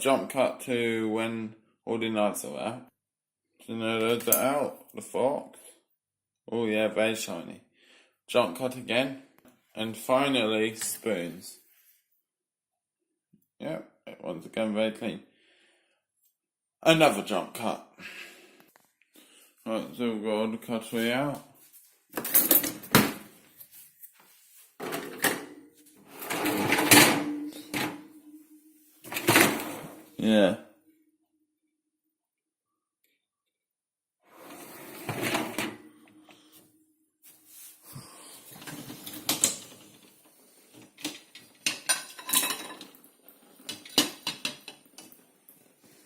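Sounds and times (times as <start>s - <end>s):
dishwasher rack sliding on rails: 24.8s - 28.4s, 29.0s - 30.1s, 34.3s - 36.0s, 38.5s - 40.0s
dishes rattling: 41.6s - 43.0s.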